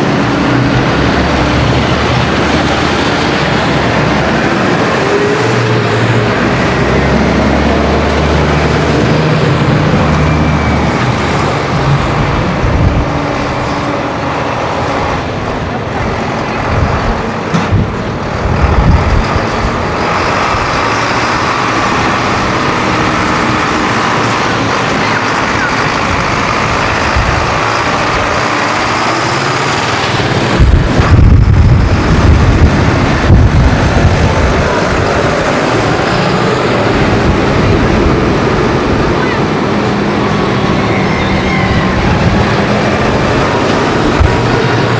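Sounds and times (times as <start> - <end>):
diesel tractor engines running: 0.0 - 44.9
low rumble: 30.4 - 35.5.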